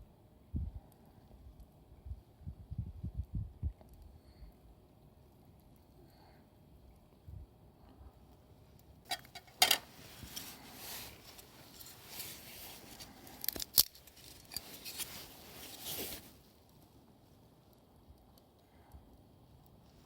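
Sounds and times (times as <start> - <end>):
sharp clicks and clinks: 9.1 - 9.9
scraping and rustling: 9.1 - 16.4.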